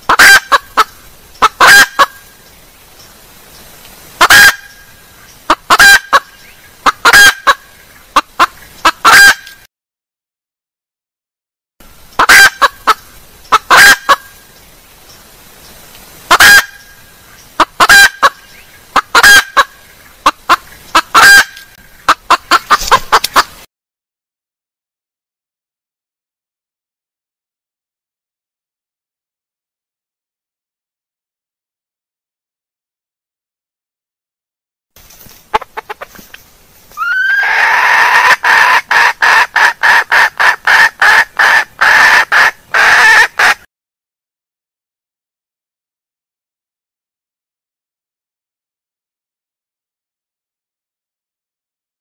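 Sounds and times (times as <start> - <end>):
hen calling loudly: 0.0 - 2.2, 4.2 - 9.6, 12.2 - 14.3, 16.3 - 16.9, 17.6 - 23.5, 35.5 - 36.2, 36.9 - 43.6
hen clucking: 0.0 - 2.2, 4.2 - 4.7, 5.4 - 9.6, 12.2 - 14.3, 16.3 - 16.8, 17.6 - 23.6, 35.5 - 36.4, 37.0 - 43.6.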